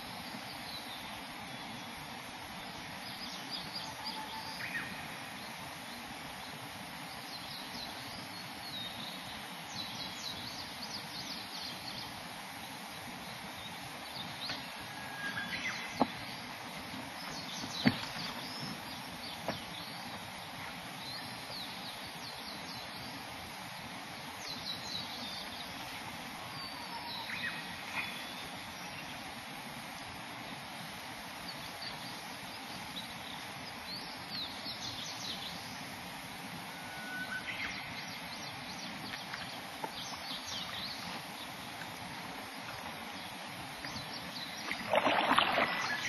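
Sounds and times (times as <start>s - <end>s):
steady outdoor noise: 0.0s - 46.0s
small birds chirping: 13.2s - 23.2s, 37.3s - 46.0s.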